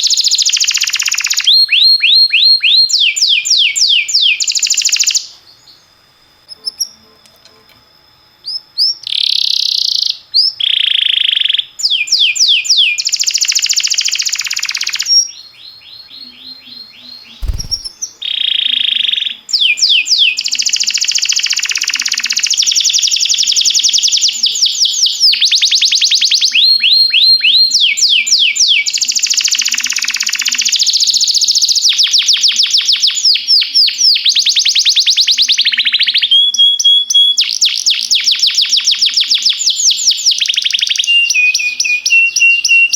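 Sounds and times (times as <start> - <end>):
canary singing rapid trills: 14.3 - 18.2.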